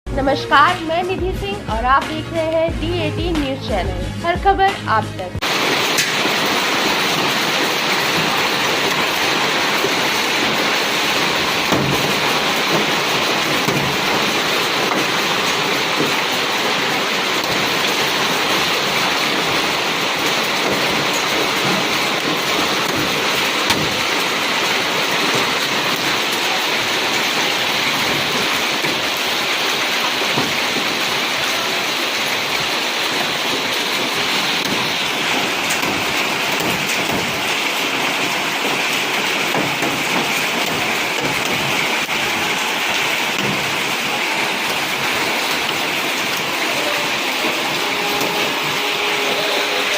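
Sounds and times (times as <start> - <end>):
raindrops tapping surfaces: 0.4 - 49.9
heavy rain pouring: 5.2 - 49.9.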